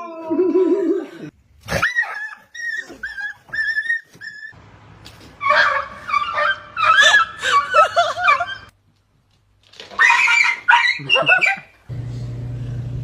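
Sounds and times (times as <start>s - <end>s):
dog whimpering and yipping: 1.8s - 4.6s.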